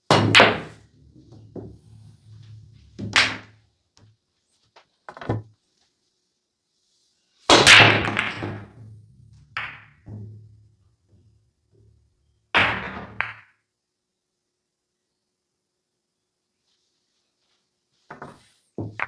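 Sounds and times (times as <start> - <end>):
pool break shot clatter: 0.1 - 3.6, 7.5 - 11.3
pool balls clacking: 0.1 - 3.7, 7.5 - 13.4.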